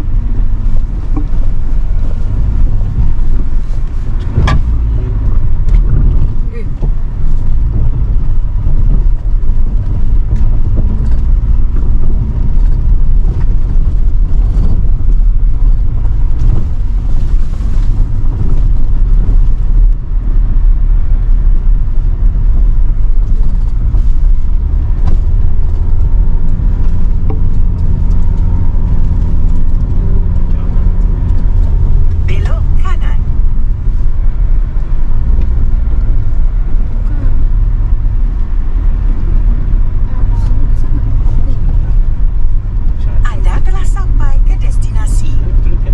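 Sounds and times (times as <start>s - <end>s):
car engine and road rumble: 0.0s - 45.9s.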